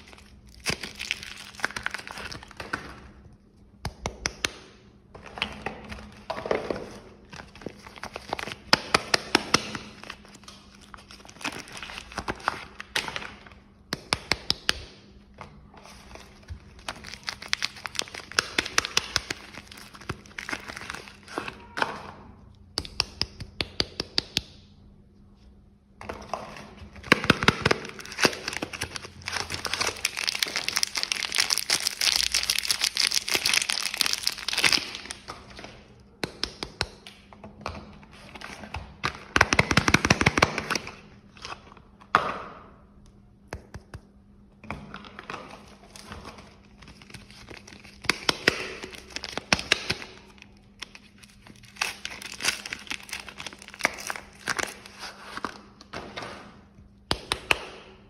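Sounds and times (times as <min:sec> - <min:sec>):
wrapper crinkling and rustling: 0:00.0 - 0:02.8, 0:09.8 - 0:13.4, 0:15.8 - 0:21.4, 0:27.0 - 0:35.8, 0:45.2 - 0:55.8.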